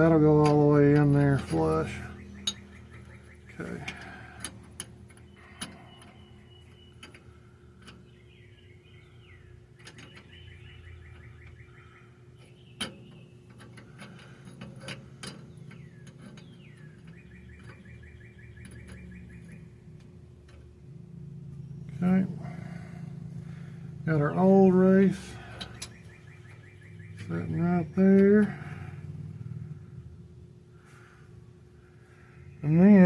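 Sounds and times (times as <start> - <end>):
metal tools clinking: 0.0 - 8.1, 9.8 - 10.4, 12.4 - 19.7, 21.8 - 28.8
birds chirping trills: 0.0 - 33.0
faint steady hum: 0.0 - 33.0.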